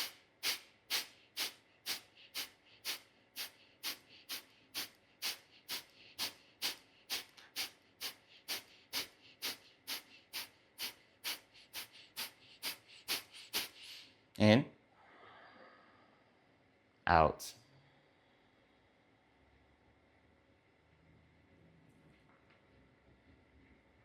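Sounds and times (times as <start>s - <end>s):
rapid forceful nasal exhales: 0.0s - 14.2s.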